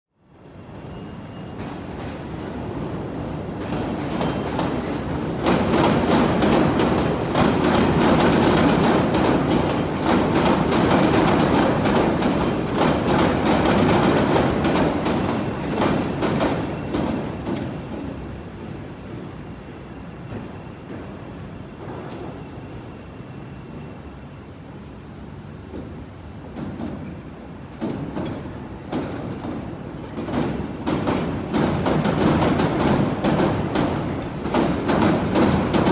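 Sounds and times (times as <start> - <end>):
elevated train passing: 0.2 - 35.9
train wheels clattering over switches: 3.6 - 18.2, 27.8 - 35.9.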